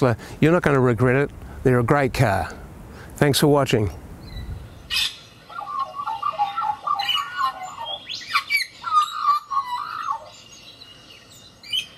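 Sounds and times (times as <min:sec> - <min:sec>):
bird warbling and squawking: 0:04.2 - 0:11.9.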